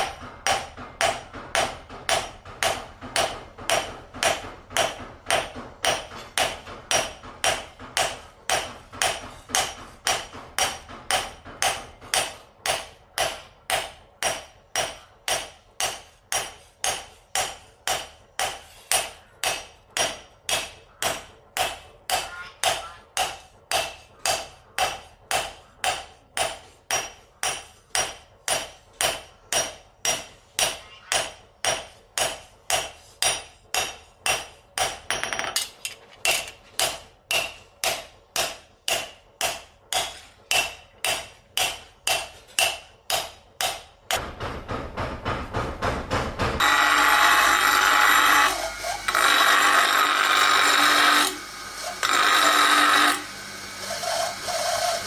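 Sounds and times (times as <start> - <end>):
hammer striking steel on anvil: 0.0 - 53.3
machine humming: 44.2 - 55.0
harsh grinding noise: 44.9 - 55.0.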